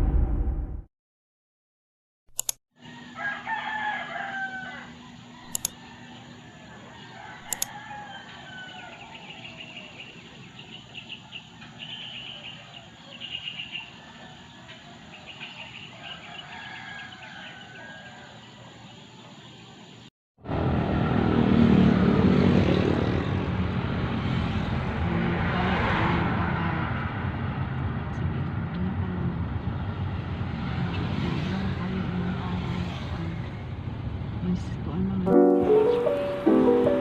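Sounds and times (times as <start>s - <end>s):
sharp clicks: 2.3s - 2.6s, 5.5s - 5.8s, 7.5s - 7.7s
rooster crowing: 2.8s - 9.6s, 13.8s - 18.6s
small birds chirping: 5.5s - 19.8s.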